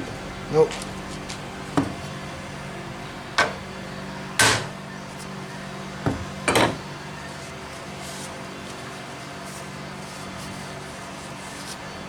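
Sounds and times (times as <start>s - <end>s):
steady low hum: 0.0s - 7.8s
tools knocking and clattering: 6.1s - 6.9s.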